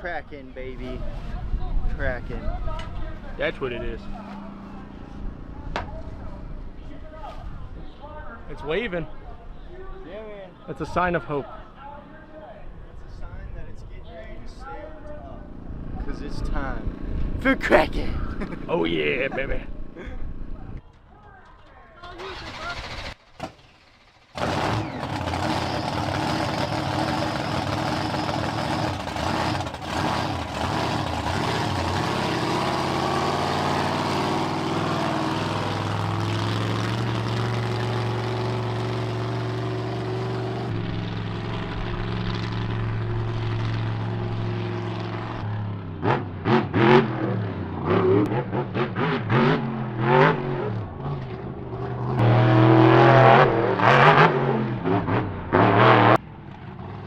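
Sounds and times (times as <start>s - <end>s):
truck engine revving hard: 24.3s - 56.2s.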